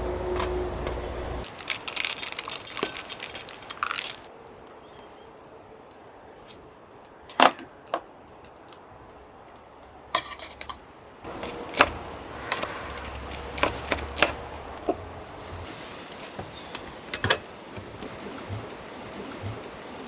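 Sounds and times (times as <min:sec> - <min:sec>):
low steady hum: 0:00.0 - 0:01.5.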